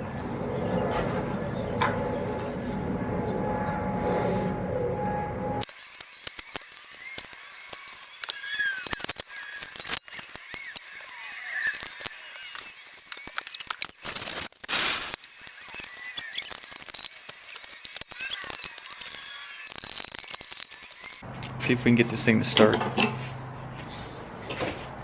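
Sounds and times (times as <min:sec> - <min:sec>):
clicks and clanks of hand tools: 0:05.6 - 0:21.2
short hiss: 0:14.1 - 0:15.2.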